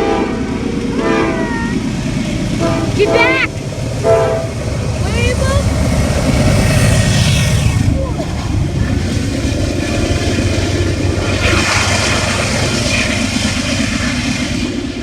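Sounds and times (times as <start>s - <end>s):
diesel train engine rumble: 0.0s - 15.0s
rail noise: 0.0s - 15.0s
hissing rush: 0.4s - 15.0s.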